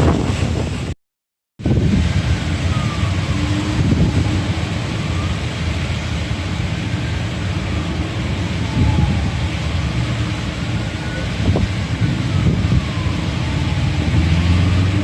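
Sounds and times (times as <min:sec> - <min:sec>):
city traffic rumble: 0:00.0 - 0:01.0, 0:01.6 - 0:15.0.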